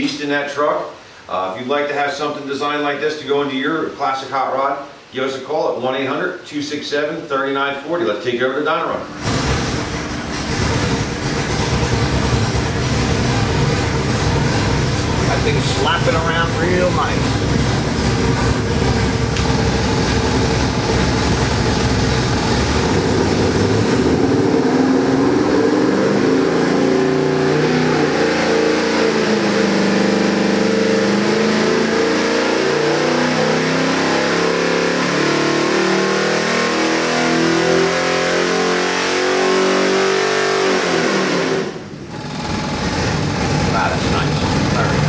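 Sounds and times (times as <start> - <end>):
engine revving: 9.2 - 45.0.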